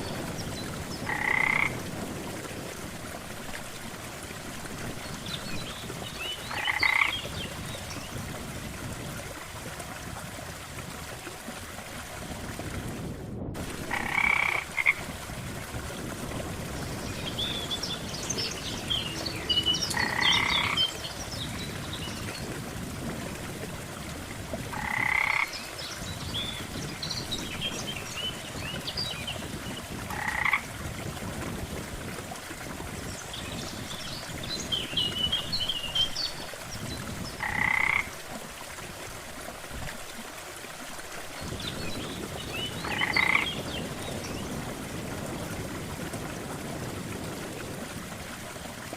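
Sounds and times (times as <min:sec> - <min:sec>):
steady hiss of water: 0:00.0 - 0:48.9
frogs croaking: 0:01.0 - 0:01.8, 0:05.9 - 0:07.6, 0:13.8 - 0:15.1, 0:18.9 - 0:21.2, 0:24.7 - 0:26.0, 0:30.1 - 0:30.7, 0:37.4 - 0:38.8, 0:42.5 - 0:43.9.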